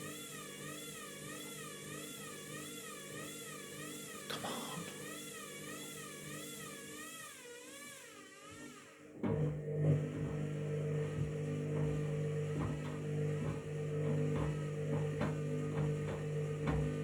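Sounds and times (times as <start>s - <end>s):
washing machine motor hum: 0.0s - 17.0s
soft knocks of turning drum: 11.7s - 17.0s.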